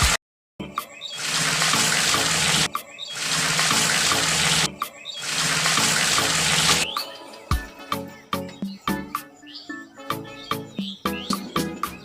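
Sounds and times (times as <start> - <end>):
water pouring and splashing: 1.1 - 7.5.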